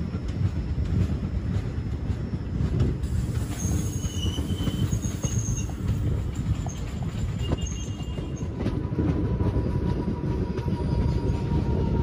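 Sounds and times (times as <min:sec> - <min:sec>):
train wheels rumbling: 0:00.0 - 0:12.0
high-pitched wheel squeals: 0:03.5 - 0:08.6.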